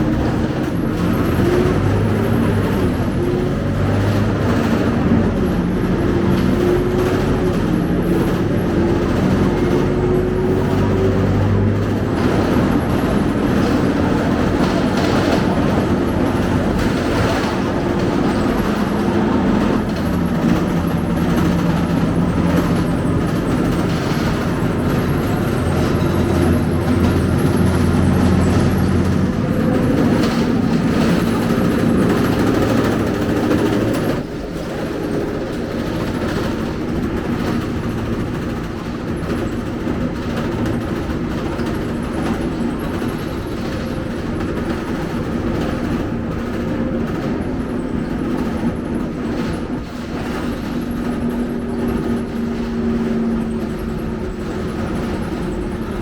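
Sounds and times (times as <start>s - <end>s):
bus diesel engine running: 0.0s - 56.0s
road noise: 0.0s - 56.0s.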